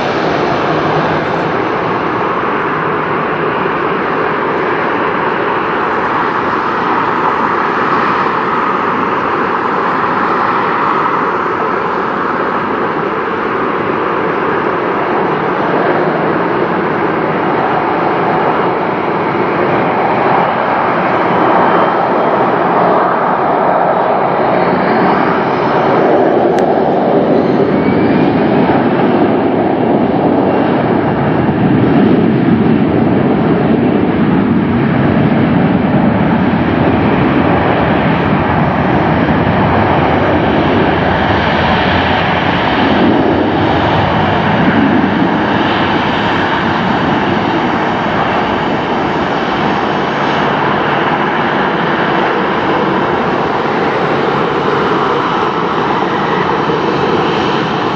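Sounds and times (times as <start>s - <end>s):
faint rising engine whine: 0.0s - 14.9s
jet engines roaring: 0.0s - 57.9s.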